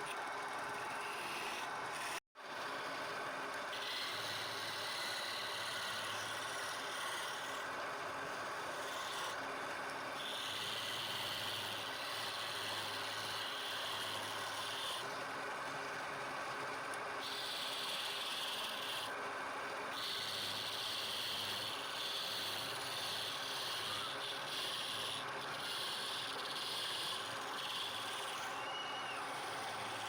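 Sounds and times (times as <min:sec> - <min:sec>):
lathe tool scraping wood: 0:03.7 - 0:07.6, 0:08.6 - 0:09.4, 0:10.2 - 0:15.0, 0:17.2 - 0:19.1, 0:20.0 - 0:30.0
harsh cutting of spinning wood: 0:20.0 - 0:30.0.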